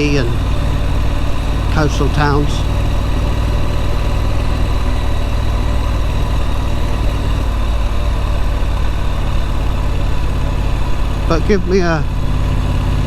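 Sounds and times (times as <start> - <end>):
motorcycle engine at low revs: 0.0 - 13.0.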